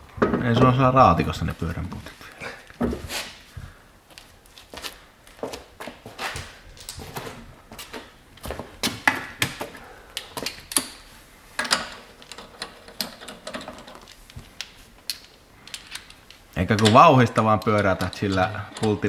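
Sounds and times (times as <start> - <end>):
metal bolts and tools clinking: 10.2 - 19.0.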